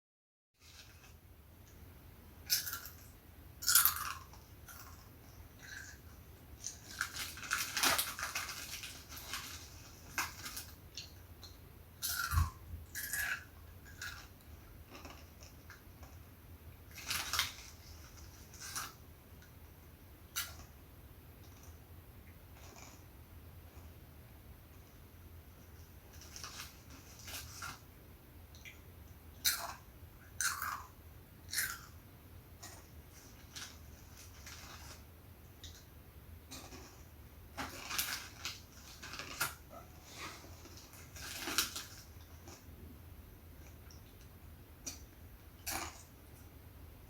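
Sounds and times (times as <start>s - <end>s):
snack packaging crinkling: 6.6s - 11.2s, 37.6s - 42.7s.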